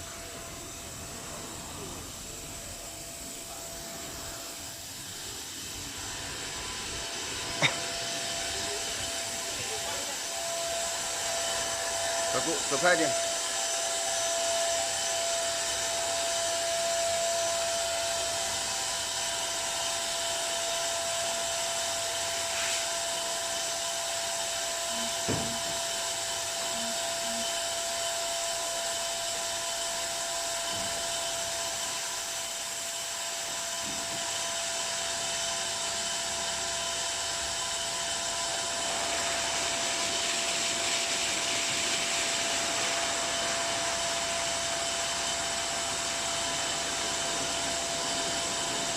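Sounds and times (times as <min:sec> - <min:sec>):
car wash rushing hiss: 0:00.0 - 0:16.6, 0:35.6 - 0:48.9
constant machine whine: 0:00.0 - 0:48.9.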